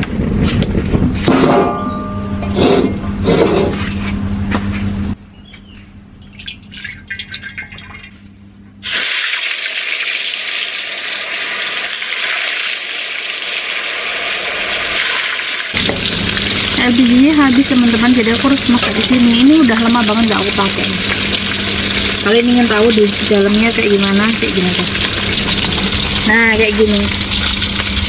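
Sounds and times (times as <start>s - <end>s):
food sizzling in hot oil: 8.8s - 28.0s.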